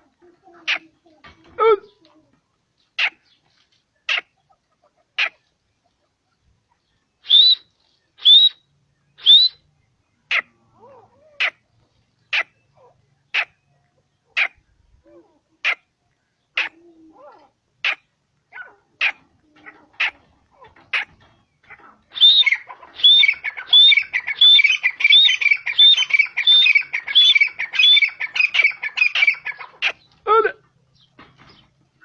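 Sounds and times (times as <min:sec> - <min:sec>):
francolin calling: 0:07.2 - 0:08.6, 0:09.2 - 0:09.6, 0:22.1 - 0:30.0.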